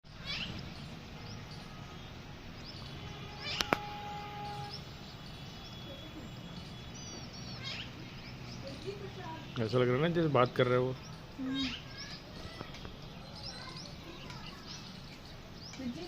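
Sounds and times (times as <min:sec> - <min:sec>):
faint bird chirps: 0:00.1 - 0:09.7, 0:11.0 - 0:16.0
parrot screeching: 0:03.4 - 0:04.7, 0:07.6 - 0:07.9.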